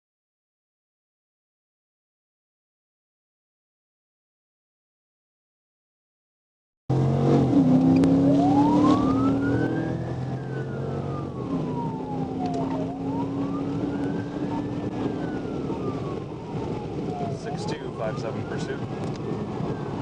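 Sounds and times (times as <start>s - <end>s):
vehicle running noise: 6.9s - 20.0s
police siren wailing: 7.4s - 20.0s.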